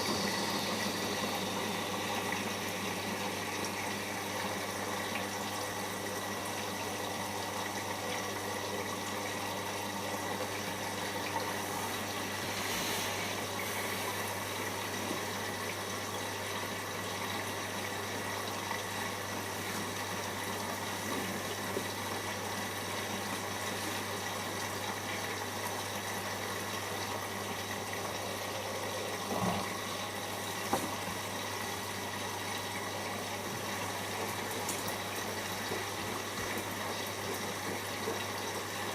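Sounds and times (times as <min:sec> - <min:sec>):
washing machine hum: 0:00.0 - 0:38.9
water sloshing in washing machine: 0:00.0 - 0:38.9.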